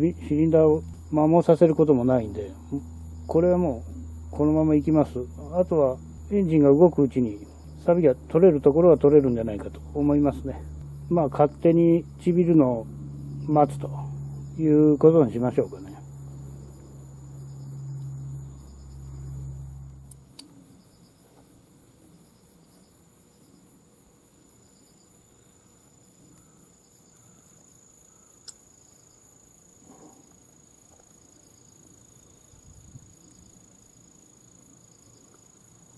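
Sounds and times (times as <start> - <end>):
low hum: 0.0 - 21.2
crickets chirping: 0.0 - 35.9
click: 20.1 - 20.5.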